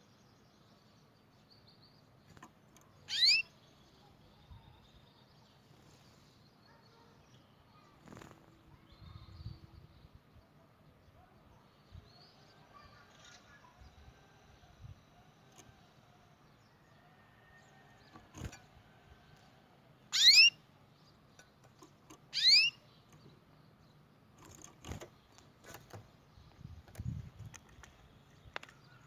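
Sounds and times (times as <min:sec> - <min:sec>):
canary calls: 0:03.0 - 0:03.6, 0:20.1 - 0:20.6, 0:22.2 - 0:23.0
faint clicks and taps: 0:26.9 - 0:28.9.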